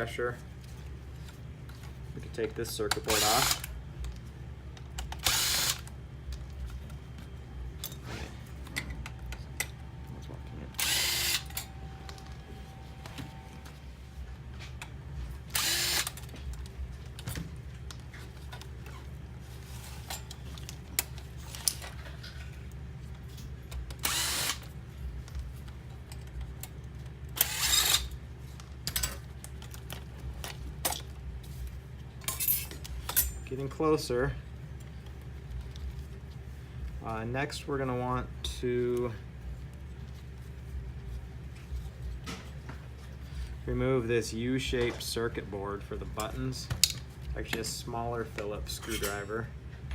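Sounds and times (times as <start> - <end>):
electric screwdriver whirring: 3.1 - 3.7, 5.0 - 5.9, 10.8 - 11.7, 15.5 - 16.2, 23.9 - 24.7, 27.4 - 28.1.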